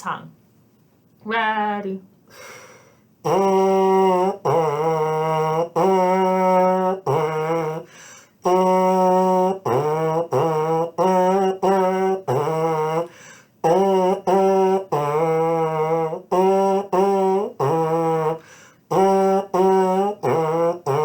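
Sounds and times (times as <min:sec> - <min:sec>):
buzzed brass mouthpiece notes: 0:03.2 - 0:21.0.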